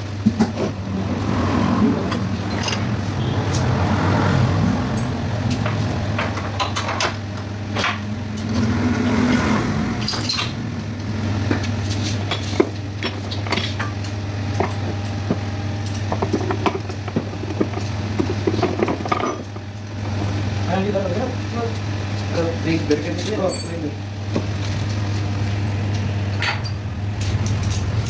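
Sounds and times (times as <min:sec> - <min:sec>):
metal tools clinking: 0:02.1 - 0:03.4, 0:10.0 - 0:10.6, 0:22.9 - 0:24.0
steady low hum: 0:23.8 - 0:28.0.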